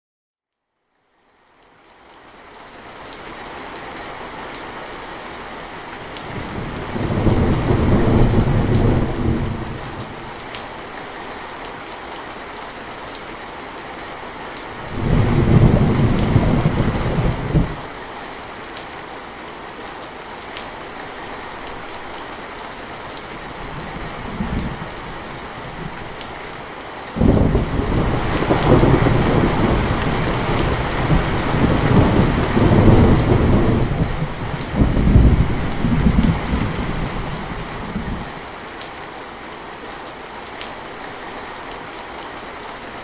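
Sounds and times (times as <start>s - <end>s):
rain on foliage: 1.0s - 43.0s
thunder rolling: 6.4s - 10.1s, 14.8s - 17.8s, 23.6s - 26.2s, 27.2s - 38.3s.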